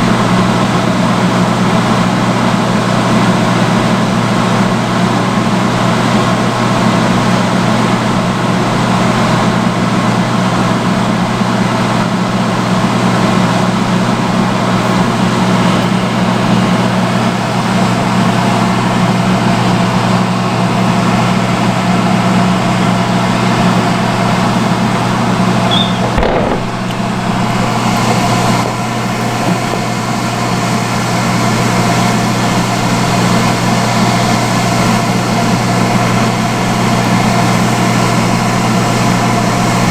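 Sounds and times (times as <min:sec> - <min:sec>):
hood hair dryer humming: 0:22.6 - 0:37.1
brief knock: 0:25.7 - 0:28.8.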